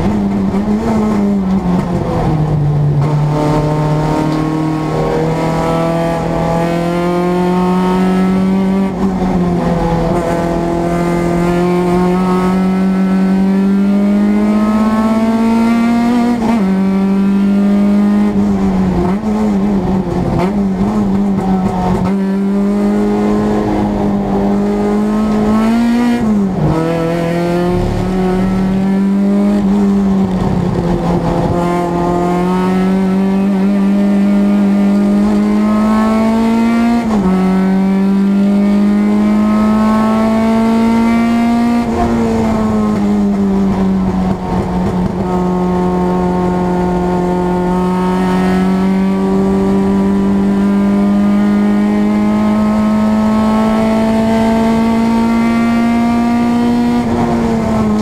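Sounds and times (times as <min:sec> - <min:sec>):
race car engine accelerating: 0:00.0 - 0:58.0.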